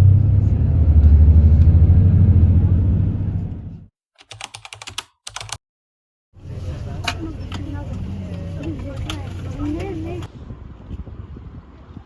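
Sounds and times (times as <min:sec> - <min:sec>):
bus engine and road rumble: 0:00.0 - 0:03.9, 0:06.4 - 0:12.0.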